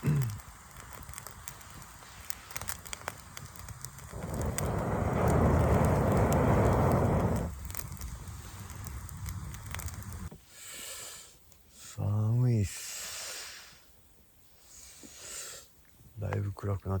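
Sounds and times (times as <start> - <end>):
campfire crackling and popping: 0.0 - 10.3.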